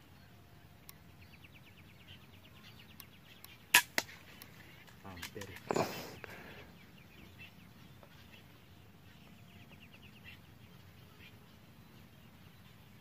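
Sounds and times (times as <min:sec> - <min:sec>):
faint bird calls: 0:00.0 - 0:13.0.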